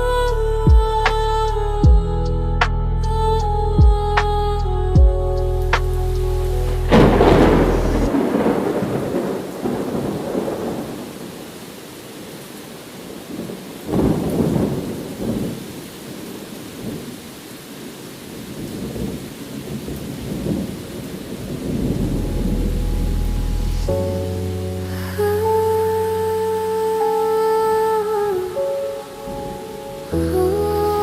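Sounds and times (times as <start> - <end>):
steady rain: 5.4 - 31.0
thunder rumbling and clapping: 6.9 - 11.1.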